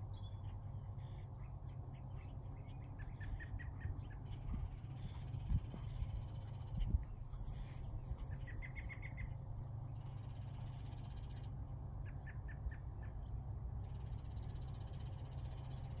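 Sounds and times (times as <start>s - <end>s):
small bird chirping: 0.0s - 9.4s
steady low rumble: 0.0s - 16.0s.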